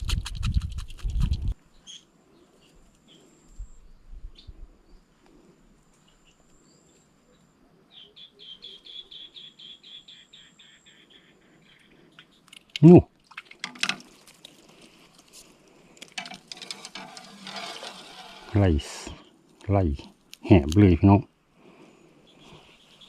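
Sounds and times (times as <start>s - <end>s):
birds chirping: 6.0s - 13.0s, 20.8s - 23.0s.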